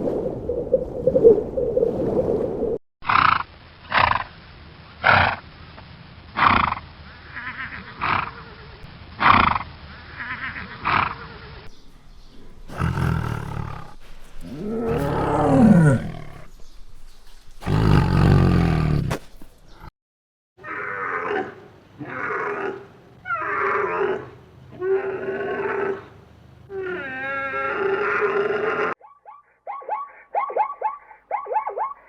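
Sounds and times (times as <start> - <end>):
farm animal calls: 11.8 - 19.9, 29.0 - 32.0.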